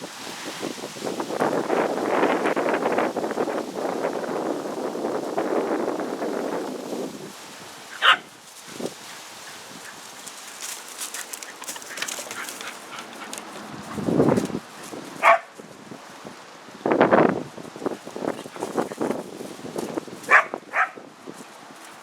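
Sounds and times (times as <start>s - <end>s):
dog yipping: 8.0s - 8.3s, 15.2s - 15.5s, 20.3s - 21.0s.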